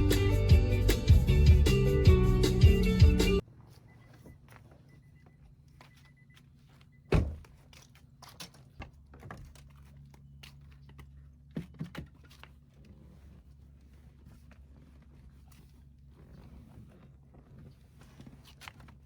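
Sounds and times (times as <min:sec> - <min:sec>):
car door shutting: 0:07.1 - 0:07.5.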